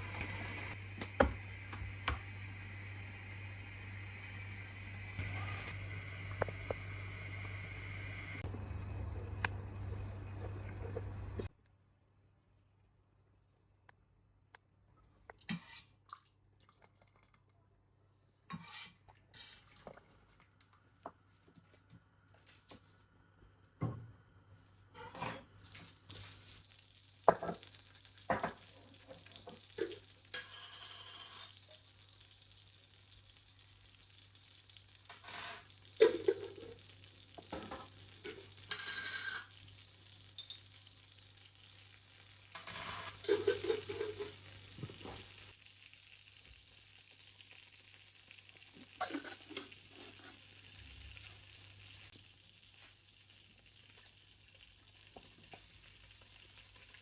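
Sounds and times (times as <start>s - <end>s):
food sizzling in a pan: 0.0s - 8.5s, 22.6s - 57.0s.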